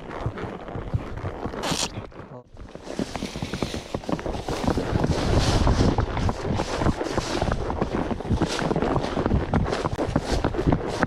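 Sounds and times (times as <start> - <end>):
horse hoofbeats: 0.0 - 11.0
wind on microphone: 2.8 - 11.0.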